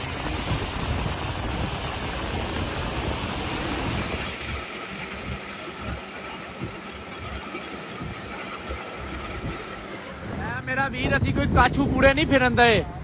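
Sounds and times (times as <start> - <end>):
heavy rain: 0.0 - 6.0
traffic noise: 0.0 - 13.0.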